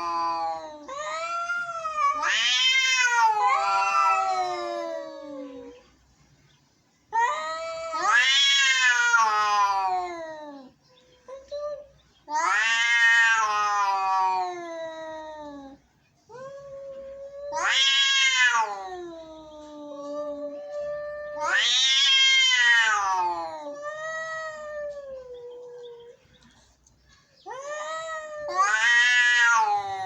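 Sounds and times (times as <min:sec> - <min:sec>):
angry cats yowling: 0:00.0 - 0:05.8, 0:07.2 - 0:10.7, 0:12.3 - 0:15.8, 0:17.1 - 0:26.1, 0:27.4 - 0:30.0.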